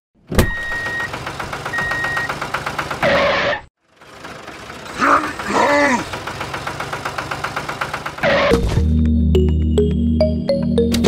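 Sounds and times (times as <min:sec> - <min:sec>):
tractor engine chugging: 0:00.8 - 0:03.0, 0:03.8 - 0:08.6.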